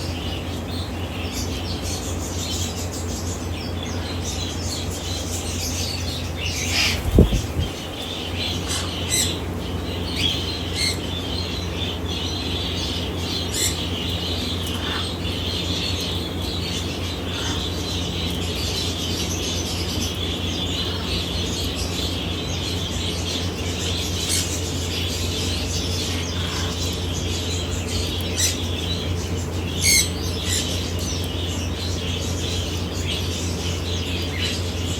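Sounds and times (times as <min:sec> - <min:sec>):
steady low hum: 0:00.0 - 0:34.9
high bird chirps and clicks: 0:25.9 - 0:32.1.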